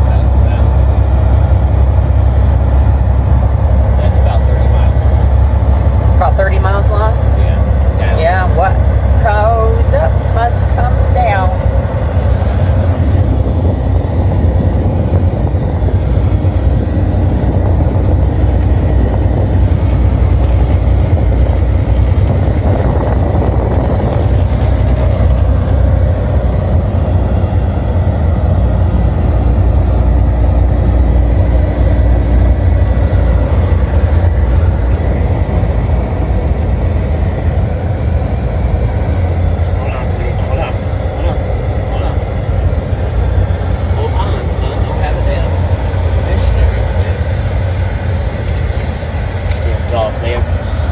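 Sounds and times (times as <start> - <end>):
truck engine and road rumble: 0.0 - 50.9.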